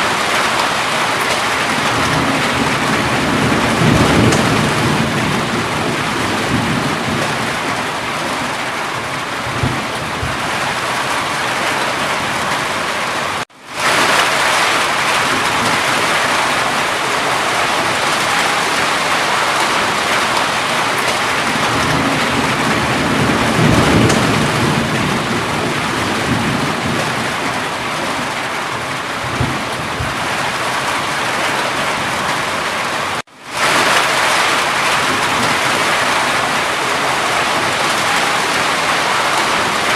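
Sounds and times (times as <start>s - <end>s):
heavy rain: 0.0s - 39.9s
low thunder rumbles: 1.5s - 12.8s, 14.9s - 31.0s.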